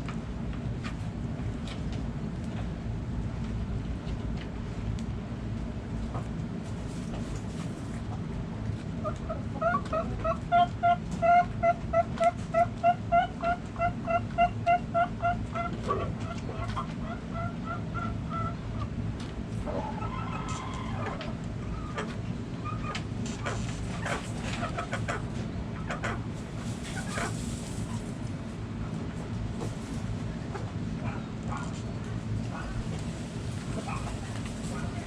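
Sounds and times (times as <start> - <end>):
low background rumble: 0.0 - 35.0
chicken clucking: 9.0 - 28.1, 33.6 - 35.0.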